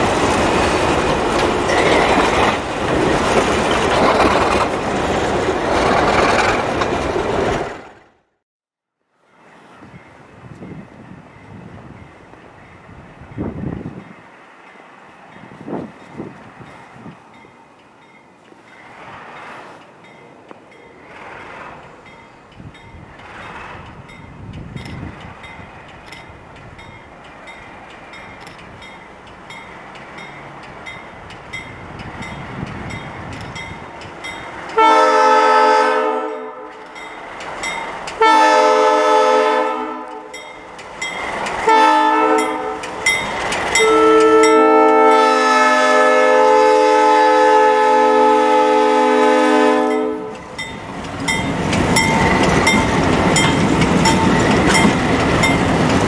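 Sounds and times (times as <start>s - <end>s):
train wheels clicking on rail joints: 0.0s - 8.2s, 9.4s - 45.9s, 49.8s - 56.0s
locomotive air horn blasts: 34.8s - 36.8s, 38.2s - 40.4s, 41.6s - 43.0s, 43.7s - 50.5s
locomotive engine rumble: 50.2s - 56.0s.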